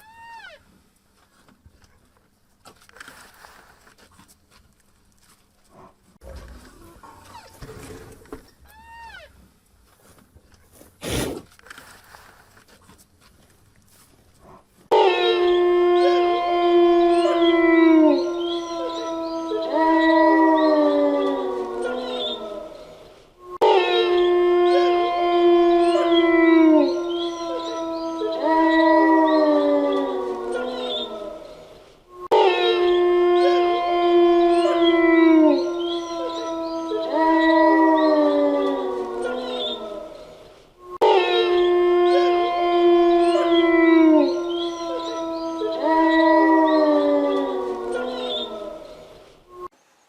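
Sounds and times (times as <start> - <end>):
dogs howling: 14.9 - 22.8, 23.6 - 31.5, 32.4 - 40.2, 41.0 - 49.0.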